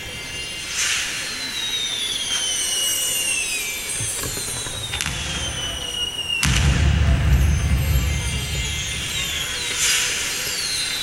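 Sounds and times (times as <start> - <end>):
firework shells whistling: 1.3 - 11.0
firework bang: 4.0 - 10.4
deep rumble: 4.4 - 9.9.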